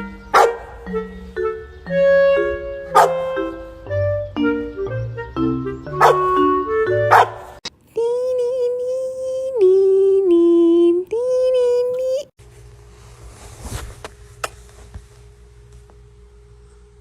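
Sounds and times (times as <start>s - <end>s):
piano music with bass: 0.0s - 7.6s.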